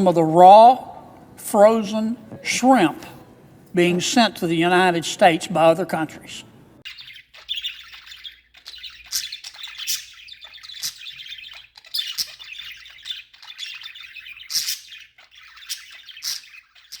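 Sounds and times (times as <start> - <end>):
budgerigars chattering: 3.8 - 17.0.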